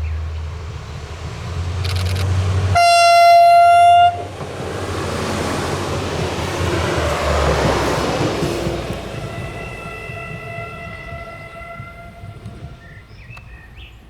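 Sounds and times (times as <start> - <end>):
train running by: 0.0 - 14.0
steam whistle blast: 2.7 - 4.3, 9.3 - 12.7.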